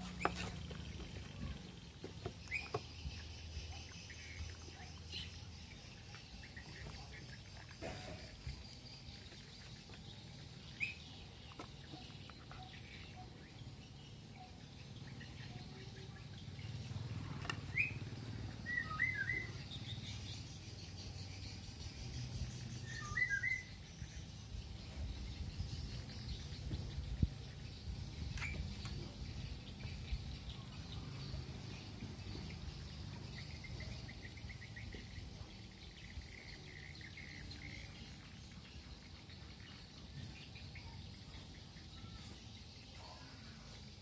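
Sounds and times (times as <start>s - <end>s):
bird chirps: 0.0s - 44.0s
low steady background rumble: 0.0s - 44.0s.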